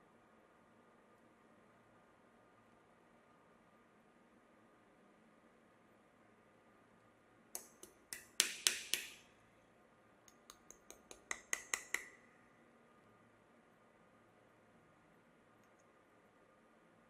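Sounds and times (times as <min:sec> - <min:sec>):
sharp clicks or taps: 0:07.6 - 0:09.2, 0:10.3 - 0:12.2.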